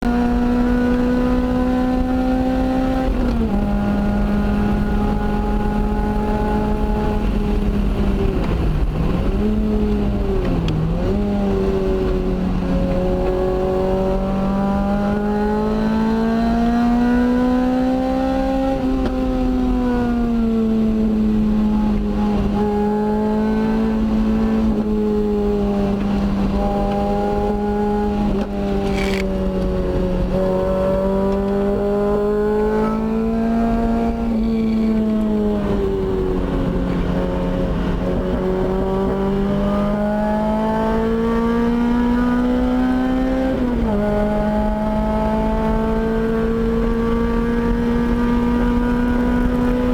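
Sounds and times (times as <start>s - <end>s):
car engine at high revs: 0.0s - 49.9s.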